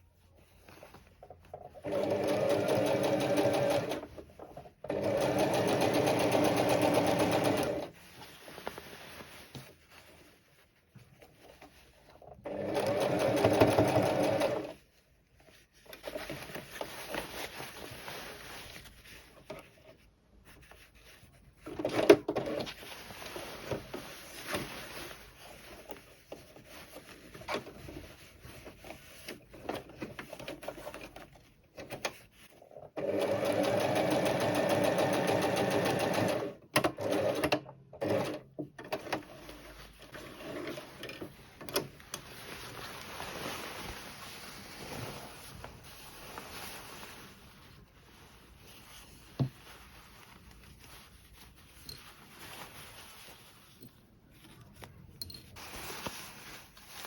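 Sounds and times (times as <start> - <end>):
sewing machine stitching: 1.8 - 4.1, 4.8 - 7.9, 12.4 - 14.8, 32.9 - 39.3.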